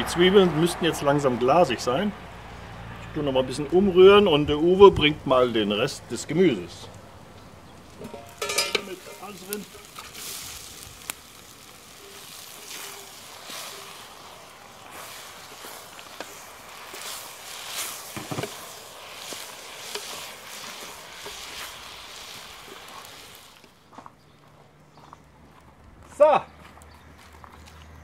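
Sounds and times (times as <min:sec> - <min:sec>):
vegetables sizzling in a pot: 0:07.3 - 0:23.8
stirring swishes: 0:08.8 - 0:23.4.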